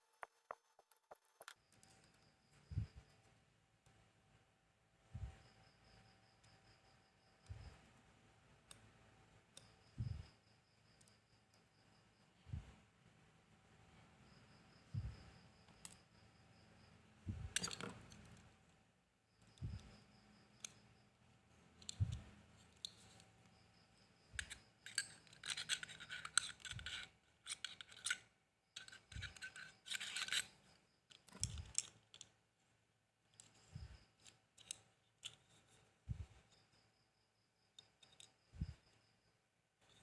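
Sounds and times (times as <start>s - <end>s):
tool scratching and scraping: 24.3s - 28.2s, 28.8s - 31.8s.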